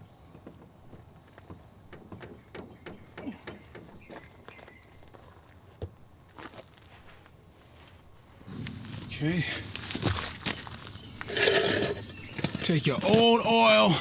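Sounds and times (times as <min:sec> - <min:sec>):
objects clicking and knocking: 0:08.5 - 0:14.0.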